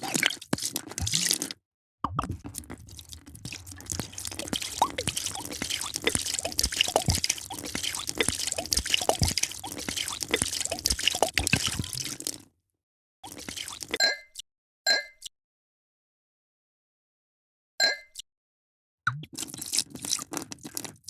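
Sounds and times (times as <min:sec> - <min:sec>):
drink being poured: 0:00.0 - 0:01.5, 0:02.1 - 0:12.4, 0:13.2 - 0:14.0, 0:19.4 - 0:21.0
liquid drips and plops: 0:00.0 - 0:12.5, 0:13.2 - 0:14.0, 0:19.1 - 0:21.0.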